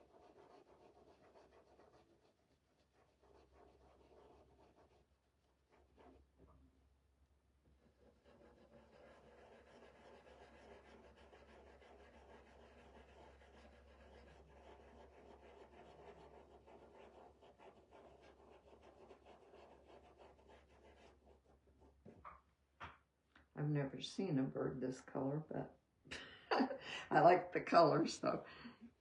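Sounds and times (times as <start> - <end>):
stencil brush scratching: 0.0 - 6.6, 7.7 - 22.4.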